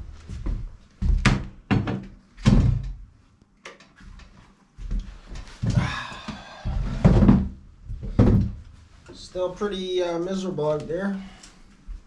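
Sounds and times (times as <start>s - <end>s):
wooden knocks and thunks: 1.0s - 3.0s, 5.6s - 8.6s.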